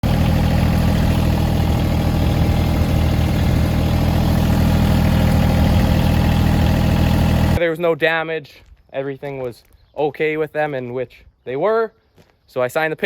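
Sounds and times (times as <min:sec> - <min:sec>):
engine idling: 0:00.0 - 0:07.6.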